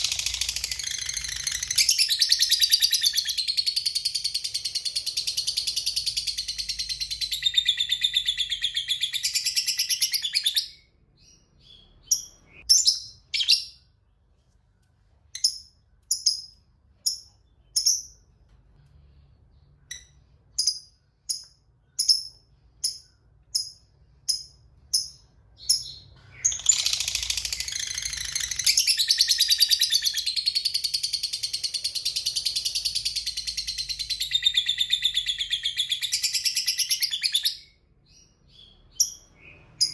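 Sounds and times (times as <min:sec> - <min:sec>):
lovebird chattering trill: 0:00.0 - 0:10.5, 0:19.9 - 0:37.4.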